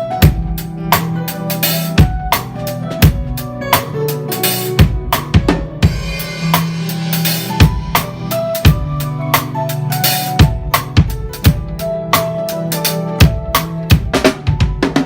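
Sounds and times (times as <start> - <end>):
backing music: 0.0 - 15.0
drum kit playing a groove: 0.0 - 15.0.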